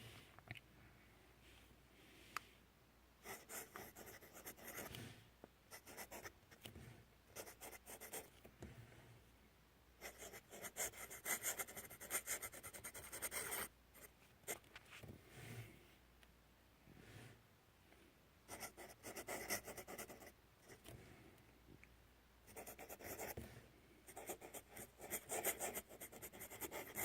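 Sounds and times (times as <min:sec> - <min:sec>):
pen scratching on paper: 0:03.3 - 0:05.0, 0:07.4 - 0:08.3, 0:10.0 - 0:13.7, 0:18.5 - 0:20.8, 0:22.5 - 0:23.4, 0:24.1 - 0:27.0.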